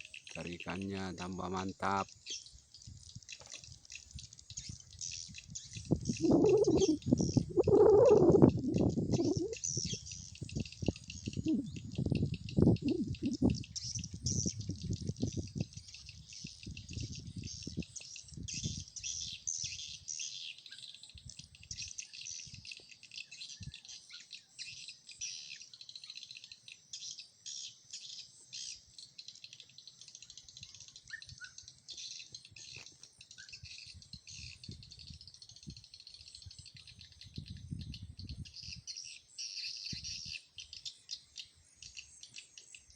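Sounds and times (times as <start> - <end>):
swiftlets chirping rapidly: 6.1 - 9.6.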